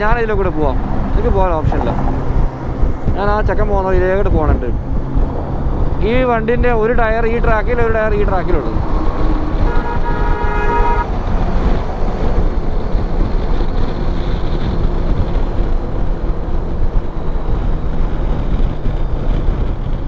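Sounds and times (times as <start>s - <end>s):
wind and road noise: 0.0s - 20.0s
vehicle horn: 8.8s - 12.3s.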